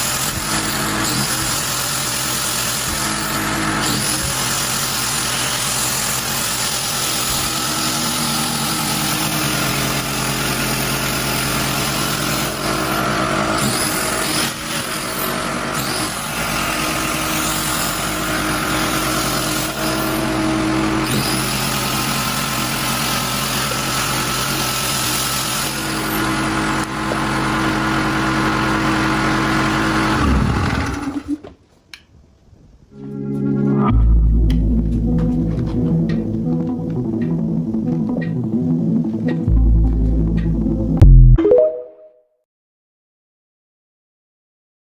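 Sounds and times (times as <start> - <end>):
small engine running: 0.0 - 31.4.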